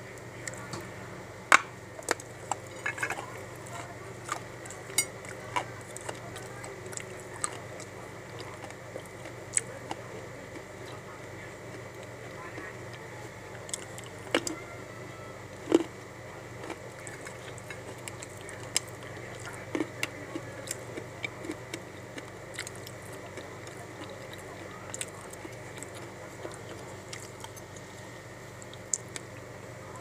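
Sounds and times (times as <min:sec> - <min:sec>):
clay soil crunching when chewed: 0:15.5 - 0:28.0.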